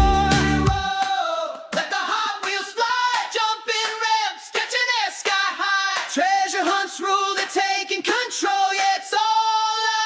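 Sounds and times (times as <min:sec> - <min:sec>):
backing music: 0:00.0 - 0:00.9
person singing: 0:00.0 - 0:04.3.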